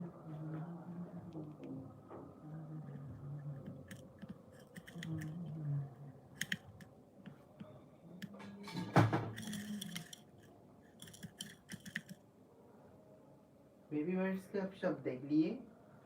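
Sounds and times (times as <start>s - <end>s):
faint low murmur: 0.0s - 10.8s
scratchy rustling: 2.8s - 6.9s, 9.4s - 12.2s.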